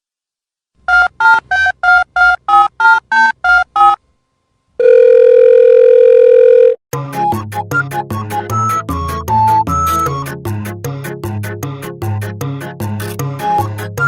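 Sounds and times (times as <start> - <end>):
steady telephone tone: 4.8 - 6.8.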